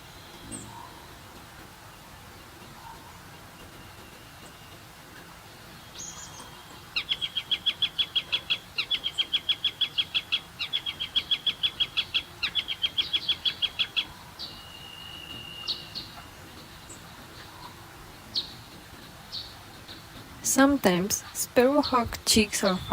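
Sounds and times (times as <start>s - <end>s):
bird chirps: 0.0s - 1.3s, 1.9s - 22.9s
bird calling rapid high notes: 5.8s - 22.9s
bird whistle: 6.0s - 16.3s.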